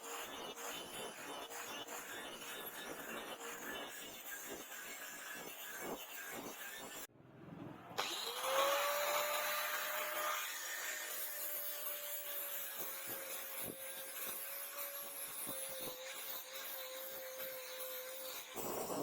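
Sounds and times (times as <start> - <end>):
electric power tool whining: 8.0 - 19.0.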